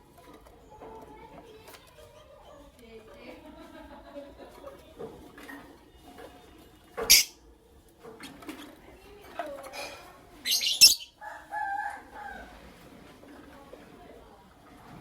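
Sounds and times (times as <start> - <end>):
lovebirds chirping: 7.1 - 7.4, 10.4 - 11.2.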